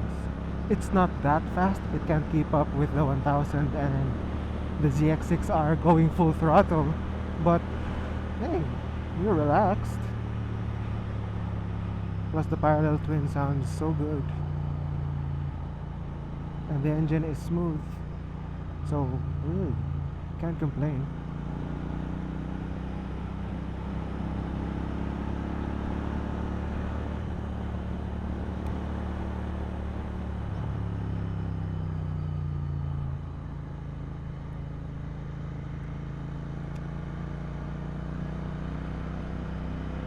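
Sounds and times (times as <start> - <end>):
motorcycle engine cruising: 0.0 - 40.0
road and wind noise: 0.0 - 40.0.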